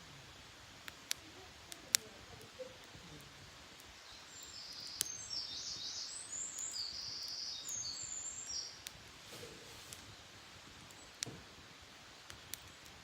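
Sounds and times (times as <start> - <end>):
campfire crack: 0.0 - 13.0
songbird warbling: 4.0 - 8.8.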